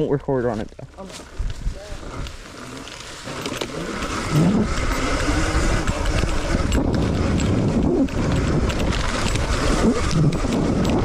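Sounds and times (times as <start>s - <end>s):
dirt bike accelerating: 0.9s - 11.0s
wind rumble on microphone: 1.2s - 2.4s, 3.6s - 11.0s.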